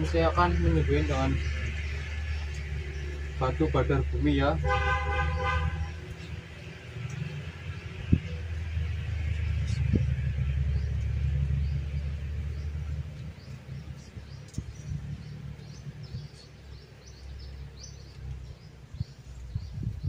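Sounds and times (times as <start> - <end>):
birds chirping: 0.0 - 20.0
low rumble: 5.7 - 16.8.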